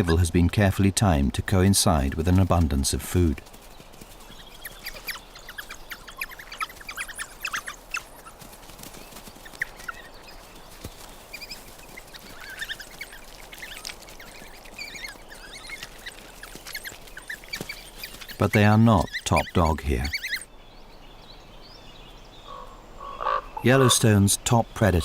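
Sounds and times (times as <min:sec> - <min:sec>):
coyote pups squeaking and yelping: 0:03.5 - 0:20.5.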